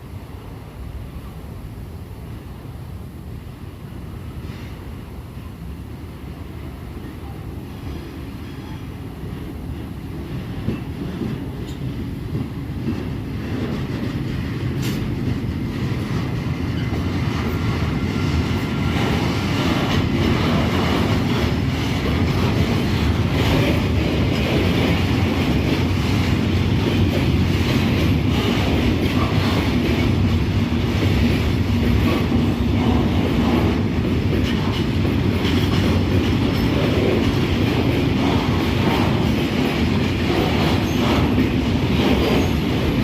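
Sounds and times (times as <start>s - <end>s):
train rumble: 0.0s - 43.0s
wheels clicking on rails: 10.2s - 43.0s.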